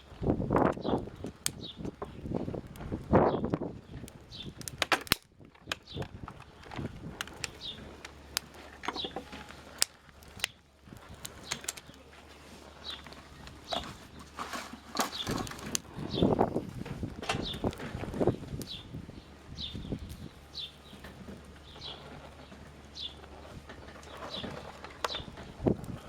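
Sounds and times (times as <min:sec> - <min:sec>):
small birds chirping: 0:00.0 - 0:04.8, 0:05.7 - 0:26.0
wind gusting on microphone: 0:00.0 - 0:04.9, 0:05.6 - 0:08.0, 0:15.2 - 0:20.6, 0:23.0 - 0:26.0
twig fire crackling: 0:00.0 - 0:26.0.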